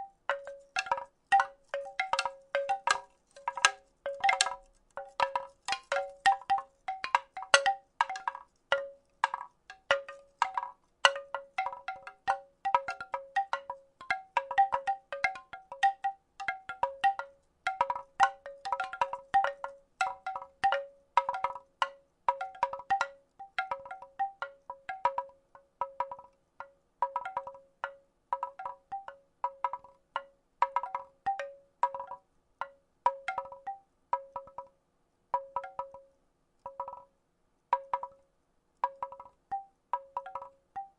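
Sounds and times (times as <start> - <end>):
wooden rattle clacking: 0.0 - 28.8.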